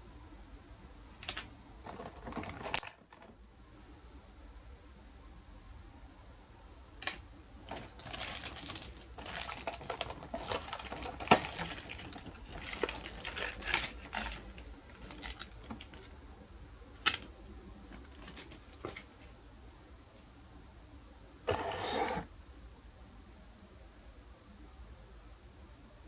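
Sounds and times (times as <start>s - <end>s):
plastic packaging crinkling: 1.2s - 3.3s, 7.0s - 16.1s, 17.9s - 19.2s.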